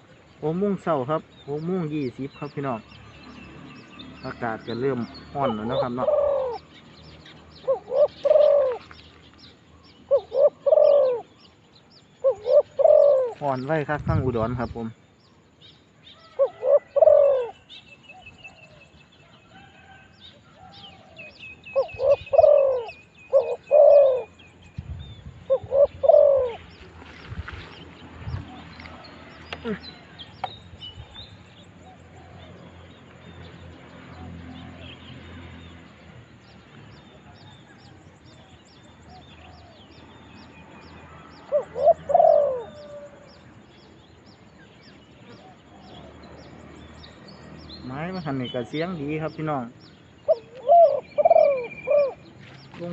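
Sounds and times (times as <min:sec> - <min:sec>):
small birds chirping: 0:00.0 - 0:52.9
dove cooing: 0:05.4 - 0:06.7, 0:07.6 - 0:09.0, 0:10.1 - 0:11.4, 0:12.2 - 0:14.2, 0:16.3 - 0:17.6, 0:20.6 - 0:24.4, 0:25.4 - 0:26.7, 0:41.4 - 0:43.5, 0:50.2 - 0:52.3.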